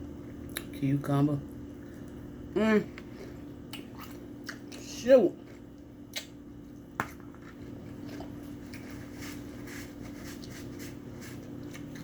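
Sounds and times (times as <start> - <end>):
steady low hum: 0.0 - 12.0
soft chewing: 1.4 - 12.0.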